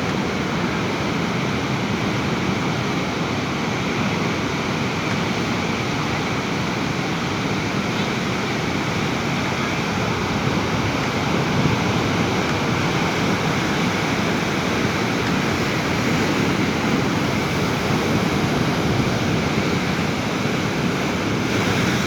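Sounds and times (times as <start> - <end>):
sea surf washing on shore: 0.0 - 22.0.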